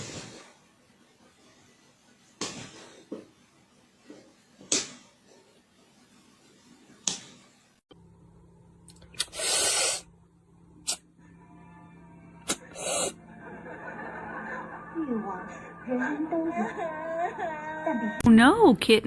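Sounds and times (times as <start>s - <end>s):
steady low hum: 7.9s - 19.0s
short hissing burst: 9.2s - 10.1s.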